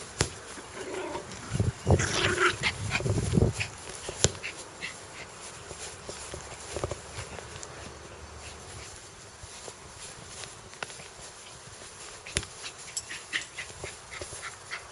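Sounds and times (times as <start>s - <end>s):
dog growling: 0.7s - 3.0s.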